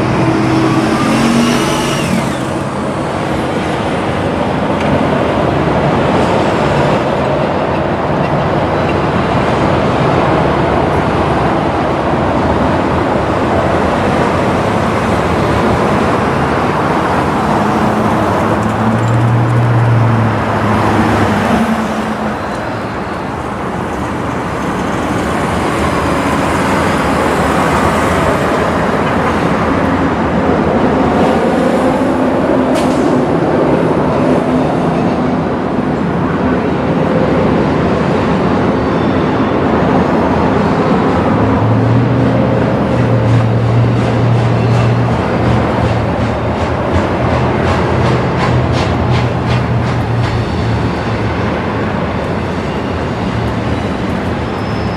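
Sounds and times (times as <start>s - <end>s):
low engine tone: 0.0s - 4.3s
train wheels rumbling on rails: 0.0s - 54.9s.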